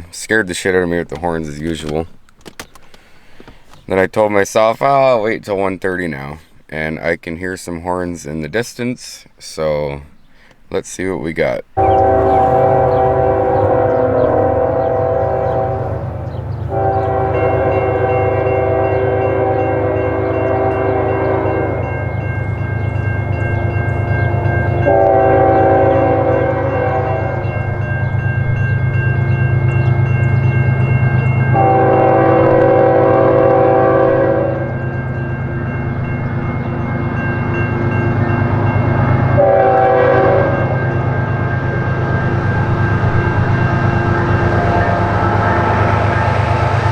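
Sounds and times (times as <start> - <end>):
locomotive low rumble: 11.6 - 46.9
locomotive air horn blasts: 11.8 - 37.2, 38.4 - 46.9.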